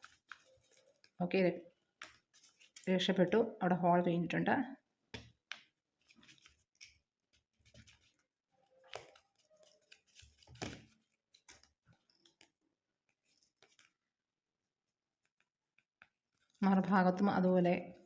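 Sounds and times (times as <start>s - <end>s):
paper crinkling and tapping: 0.0s - 1.2s, 1.8s - 3.2s, 5.1s - 14.1s, 15.1s - 16.8s.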